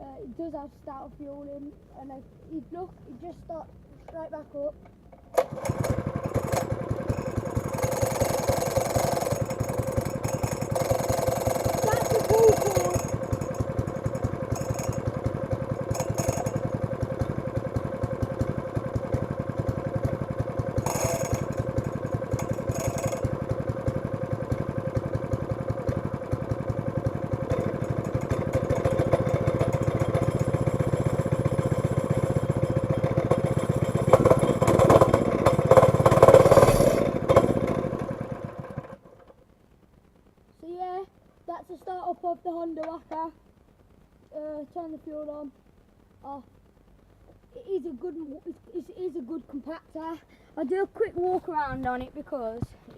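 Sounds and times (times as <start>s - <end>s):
plate compactor engine running: 5.2s - 39.4s.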